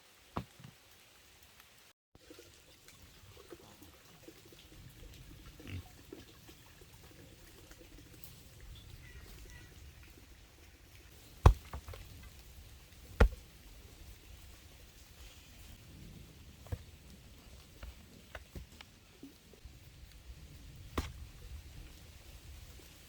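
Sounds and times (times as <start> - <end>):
sharp knocks: 11.4 - 12.0.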